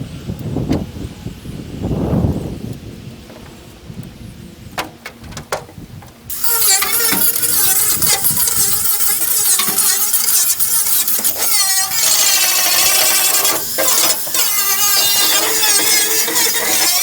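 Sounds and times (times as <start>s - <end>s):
angle grinder grinding metal: 6.3s - 17.0s.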